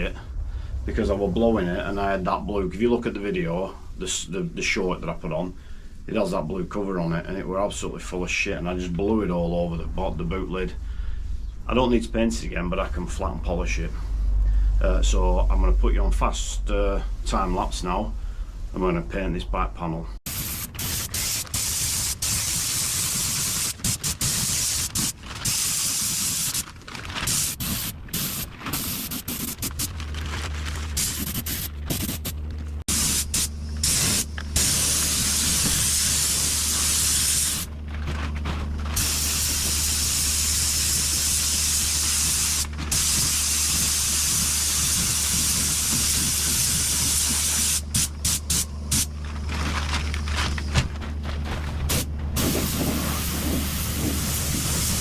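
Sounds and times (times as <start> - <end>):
steady low hum: 0.0 - 55.0
paint spray gun hissing: 20.3 - 26.6, 27.3 - 29.8, 31.0 - 37.7, 39.0 - 49.1, 51.9 - 55.0.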